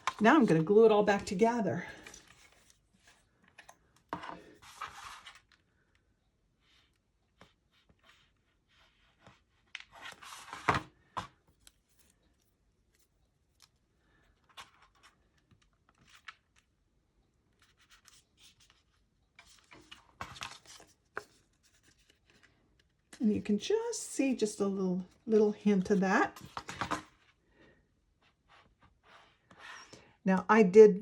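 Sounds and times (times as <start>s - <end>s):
paper rustling: 0.0s - 5.6s, 17.5s - 23.2s, 25.7s - 27.2s
scraping rustles of paper: 4.2s - 5.6s.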